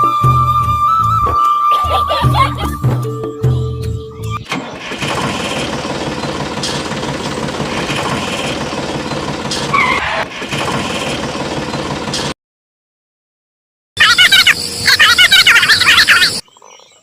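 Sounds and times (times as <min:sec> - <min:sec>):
small engine running: 0:04.6 - 0:12.3.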